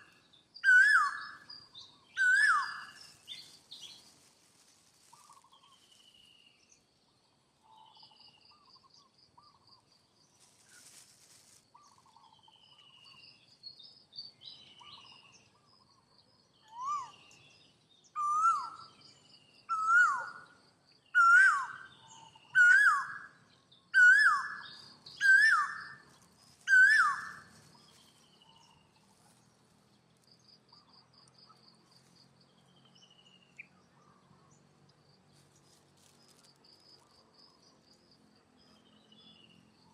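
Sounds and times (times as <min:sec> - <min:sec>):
faint high bird chirping: 0:00.0 - 0:34.6
whistled animal calls: 0:00.6 - 0:03.2, 0:24.0 - 0:27.5.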